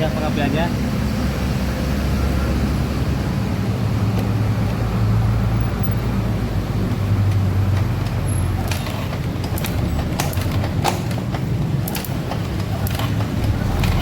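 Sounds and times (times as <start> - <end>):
engine humming: 0.0 - 14.0
sharp clicks: 7.3 - 14.0.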